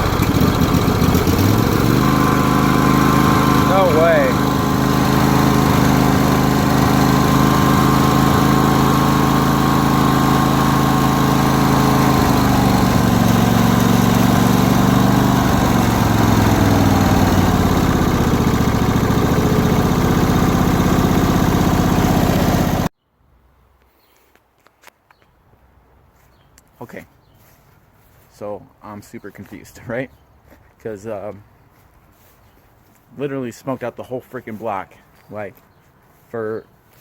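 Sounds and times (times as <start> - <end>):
lawn tractor engine running: 0.0 - 22.9.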